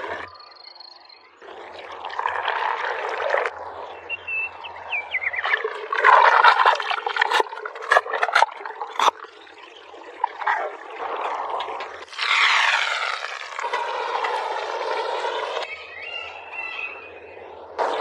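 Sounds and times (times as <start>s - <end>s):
birds chirping: 3.5s - 6.6s, 15.2s - 18.0s.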